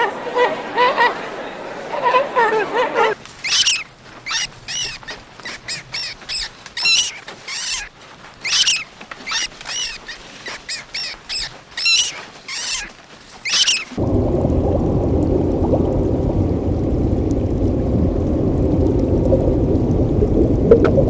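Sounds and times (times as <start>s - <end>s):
animal squeaking calls: 2.0s - 14.0s.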